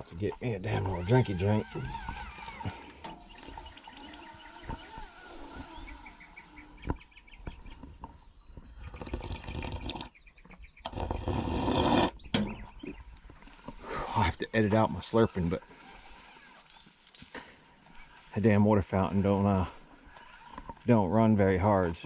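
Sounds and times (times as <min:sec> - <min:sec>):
man slurping water: 0:08.7 - 0:10.2.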